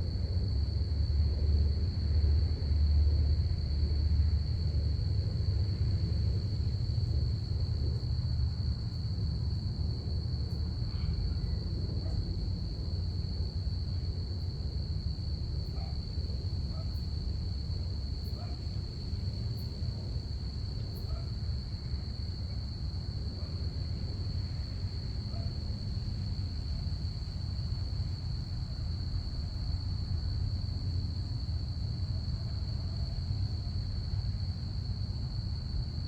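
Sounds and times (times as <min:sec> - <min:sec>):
low steady rumble: 0:00.0 - 0:36.0
crickets trilling: 0:00.1 - 0:36.0.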